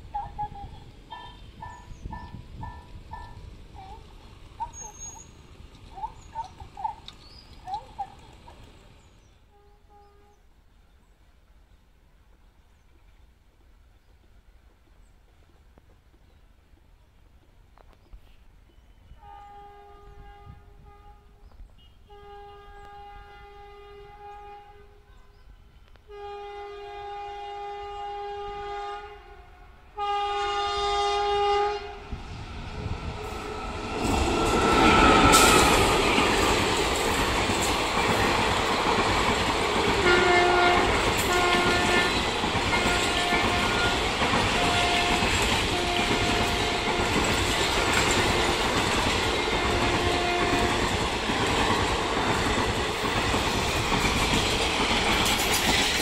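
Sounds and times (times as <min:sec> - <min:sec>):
locomotive passing with a rush: 0:00.0 - 0:09.3, 0:30.8 - 0:56.0
train horn blasts: 0:01.1 - 0:04.0, 0:09.4 - 0:10.6, 0:19.0 - 0:36.7, 0:39.8 - 0:51.1
train wheels clacking over rail joints: 0:33.2 - 0:56.0.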